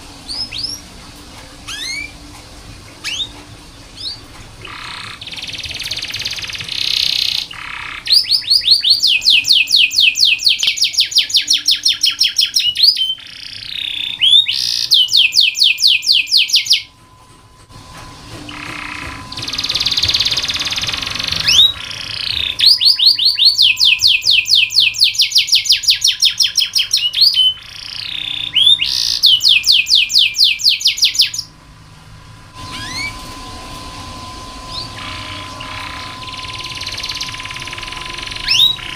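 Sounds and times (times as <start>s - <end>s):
canary singing trills: 0.2s - 0.9s, 1.6s - 2.3s, 3.0s - 17.0s, 18.5s - 31.6s, 32.6s - 38.9s
buzzy bird phrases: 32.6s - 38.9s.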